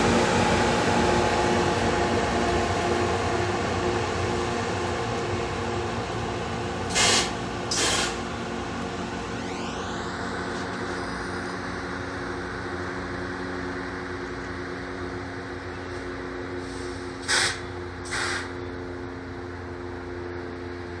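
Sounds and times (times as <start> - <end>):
rail grinder train running: 0.0 - 21.0
air hiss bursts: 6.9 - 8.2, 16.6 - 18.6.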